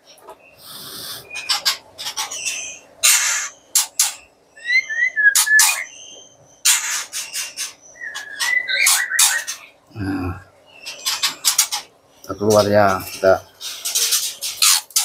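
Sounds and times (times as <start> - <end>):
short chirping bird calls: 0.5 - 9.8
bird harsh squawks: 0.6 - 9.8.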